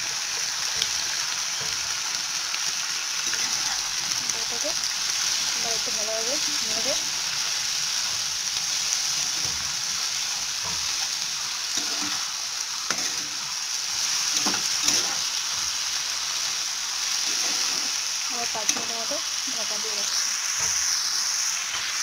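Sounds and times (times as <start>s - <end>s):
vegetables sizzling in a frying pan: 0.0s - 22.0s
spatula scraping a pan: 3.2s - 4.3s, 9.1s - 15.9s, 17.0s - 19.1s.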